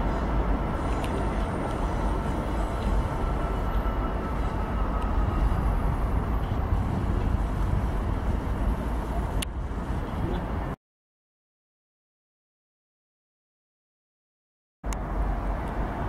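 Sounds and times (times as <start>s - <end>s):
train rumbling away: 0.0s - 10.8s.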